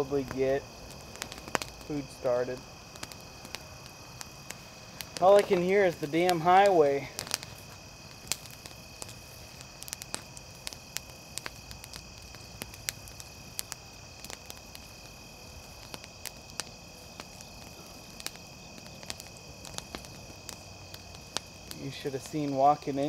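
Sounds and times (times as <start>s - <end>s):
campfire crackling: 0.0s - 23.0s
insect drone: 0.0s - 23.0s.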